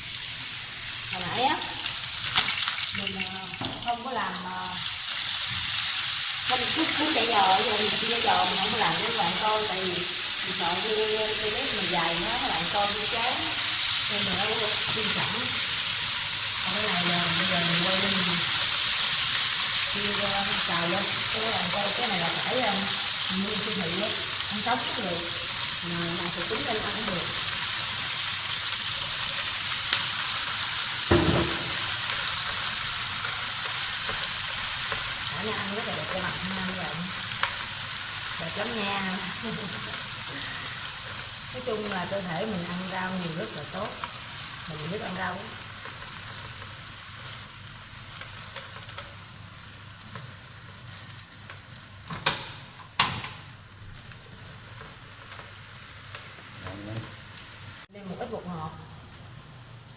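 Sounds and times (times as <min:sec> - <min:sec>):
oil sizzling in a frying pan: 0:00.0 - 0:59.9
knock: 0:31.1 - 0:31.8.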